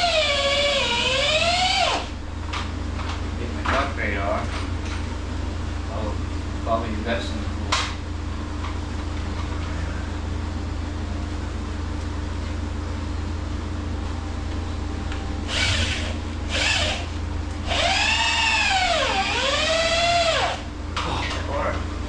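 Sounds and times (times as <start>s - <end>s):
power drill running: 0.0s - 2.1s, 15.5s - 20.7s.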